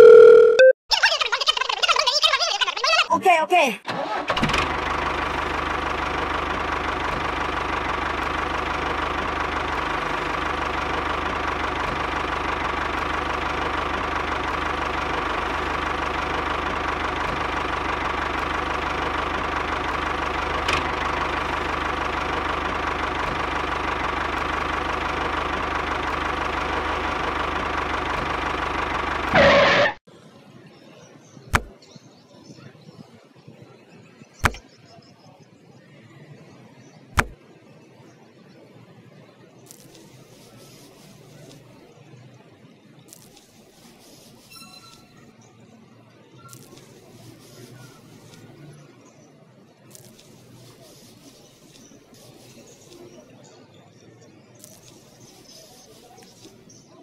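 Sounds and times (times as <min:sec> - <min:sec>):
tractor engine running: 0:03.9 - 0:30.0, 0:34.4 - 0:34.6, 0:37.2 - 0:37.4, 0:46.5 - 0:48.9, 0:49.8 - 0:53.2
sharp click: 0:34.4 - 0:34.6.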